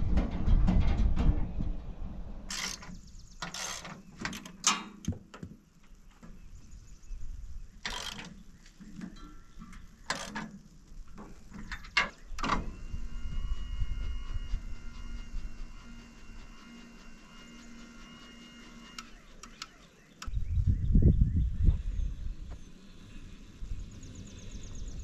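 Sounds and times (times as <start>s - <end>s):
mechanical hum with whine: 0.0s - 25.0s
mechanical clicks and ratcheting: 2.5s - 4.9s, 7.8s - 8.4s, 10.0s - 10.7s.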